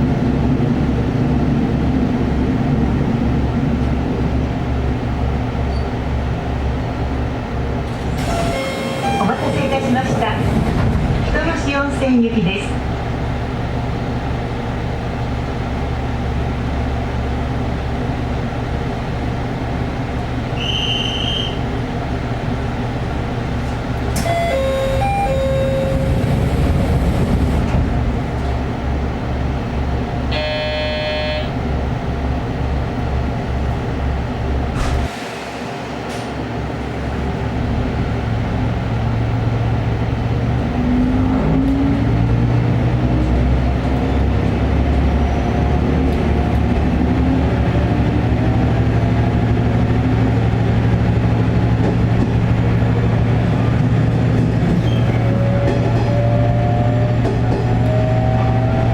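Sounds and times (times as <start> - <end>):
diesel railcar engine throbbing: 0.0 - 58.9
brief horn toot: 30.3 - 31.5.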